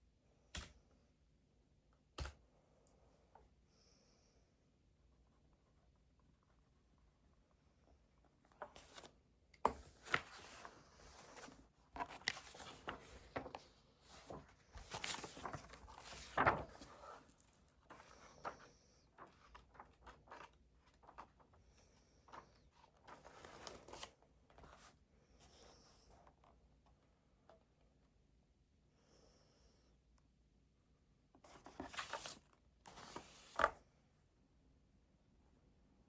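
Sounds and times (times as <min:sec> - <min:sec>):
paper rustling on desk: 0:08.5 - 0:21.4, 0:22.3 - 0:24.9, 0:31.5 - 0:33.8.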